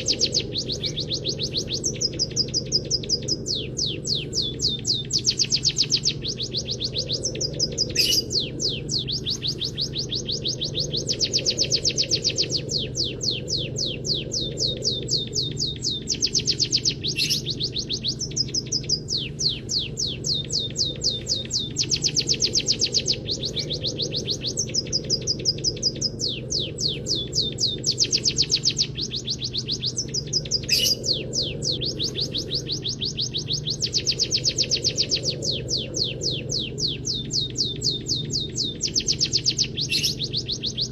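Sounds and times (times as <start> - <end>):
bird singing rapid high notes: 0.0 - 40.9
steady low hum: 0.0 - 40.9.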